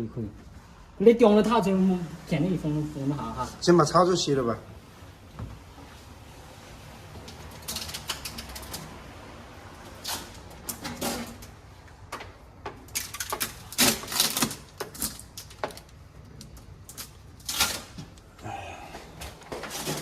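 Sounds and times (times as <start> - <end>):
objects clicking and rattling: 7.3 - 9.0, 10.0 - 18.3.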